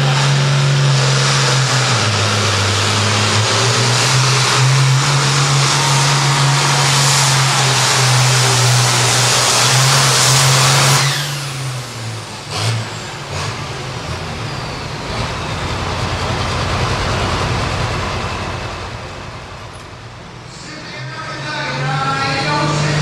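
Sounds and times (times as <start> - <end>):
high whine gliding down: 0.0 - 13.2
tractor diesel engine: 0.0 - 23.0.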